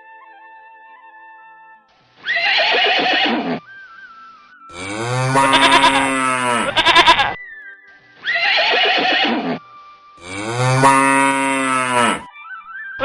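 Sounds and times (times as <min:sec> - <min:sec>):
faint background music: 0:00.0 - 0:13.0
rough animal call: 0:02.2 - 0:03.6, 0:04.7 - 0:07.4, 0:08.2 - 0:09.6, 0:10.2 - 0:12.3
cow mooing: 0:04.8 - 0:07.4, 0:08.3 - 0:09.6, 0:10.2 - 0:12.3.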